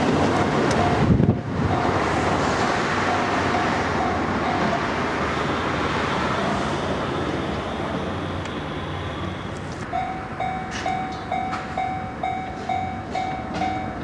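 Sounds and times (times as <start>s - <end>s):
crossing bell clanging: 0.0s - 2.4s, 3.0s - 5.5s, 9.9s - 14.0s
electric train rumbling past: 0.0s - 14.0s.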